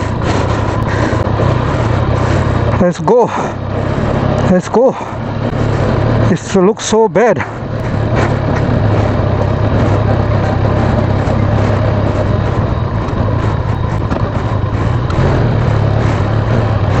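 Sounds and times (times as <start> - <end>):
motorcycle engine humming: 0.0 - 17.0
road and wind noise: 0.0 - 17.0.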